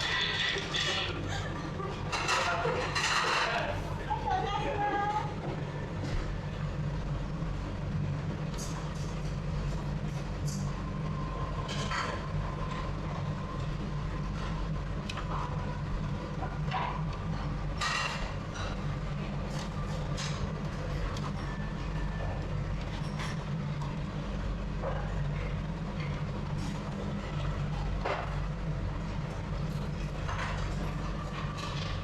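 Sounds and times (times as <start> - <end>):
dishes and utensils clinking: 0.0 - 1.5, 2.1 - 3.8, 11.6 - 12.2
low mechanical rumble: 0.0 - 32.0.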